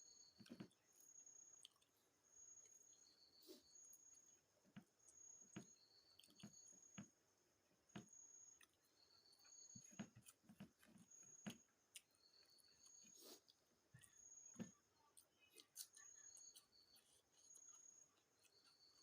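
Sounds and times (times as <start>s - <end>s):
chewing and wet mouth clicks: 1.5s - 2.0s, 5.1s - 6.6s, 15.1s - 19.0s.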